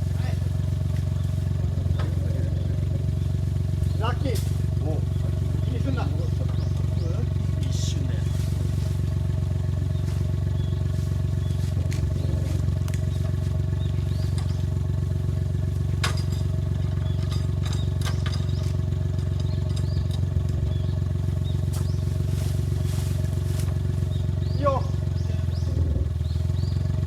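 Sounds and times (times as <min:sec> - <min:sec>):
vehicle engine running steadily: 0:00.0 - 0:27.0
sharp clicks and knocks: 0:16.0 - 0:20.6.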